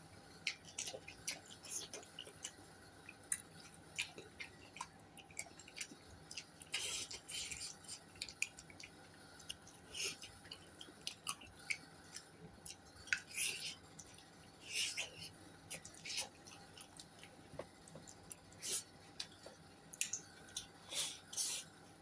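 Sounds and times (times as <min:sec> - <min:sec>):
person chewing: 0:00.3 - 0:21.7.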